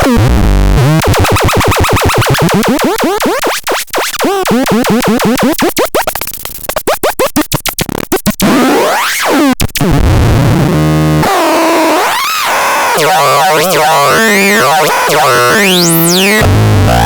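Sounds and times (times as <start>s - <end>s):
loud harsh buzz: 11.2s - 17.0s
rising and falling electronic sweep: 11.2s - 17.0s
electronic pitch swoops: 11.6s - 17.0s
electronic chirps and clicks: 12.6s - 17.0s.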